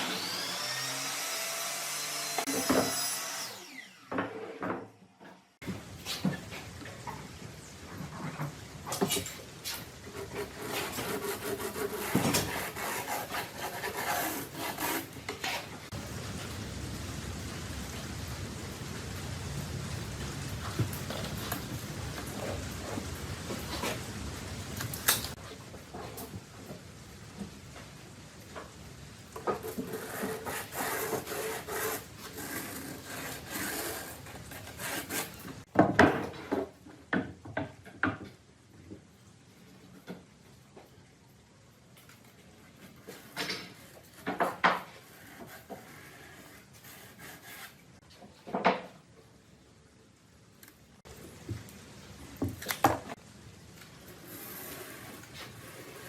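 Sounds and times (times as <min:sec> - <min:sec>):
steady hiss: 0:05.6 - 0:35.7, 0:49.3 - 0:56.0
hand tool rasping against wood: 0:10.2 - 0:15.7, 0:29.8 - 0:35.6.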